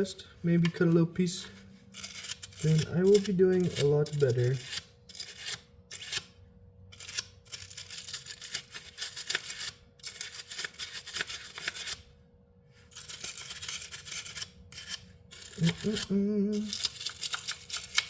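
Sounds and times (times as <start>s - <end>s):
hand rubbing and scraping: 0.0s - 6.4s, 12.8s - 18.0s
faint steady hum: 0.0s - 18.0s.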